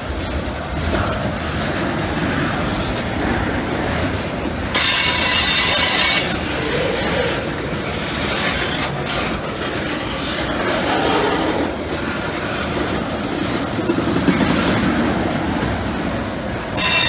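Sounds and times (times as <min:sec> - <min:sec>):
train wheels clattering on rails: 0:00.0 - 0:17.0
metallic wheel squeal: 0:04.8 - 0:06.7, 0:16.8 - 0:17.0.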